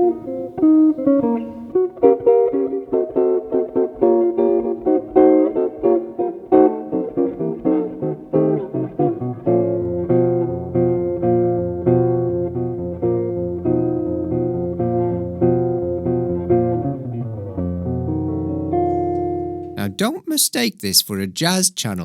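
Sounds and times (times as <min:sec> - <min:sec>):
solo jazz guitar: 0:00.0 - 0:20.7.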